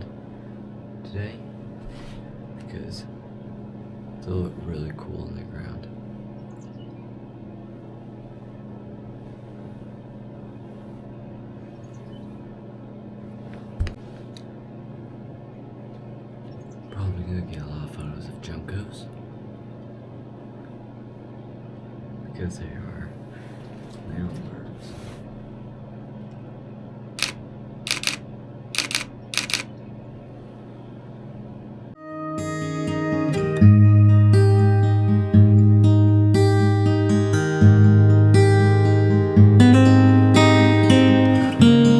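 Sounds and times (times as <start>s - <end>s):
sharp clicks: 27.2s - 28.2s, 28.8s - 29.7s.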